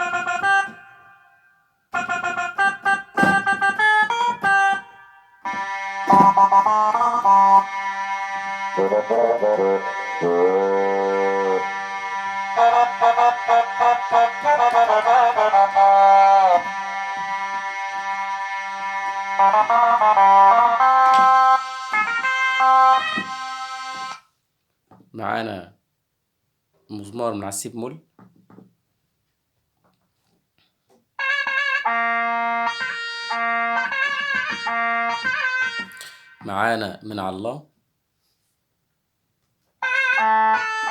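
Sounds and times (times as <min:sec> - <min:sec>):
accordion-like keyboard melody: 0:00.0 - 0:24.2, 0:31.2 - 0:36.5, 0:39.8 - 0:40.9
held drone note: 0:05.5 - 0:24.1.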